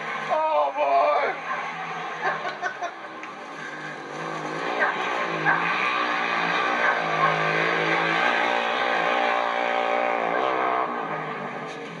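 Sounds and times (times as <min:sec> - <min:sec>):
engine revving hard: 0:03.6 - 0:11.6.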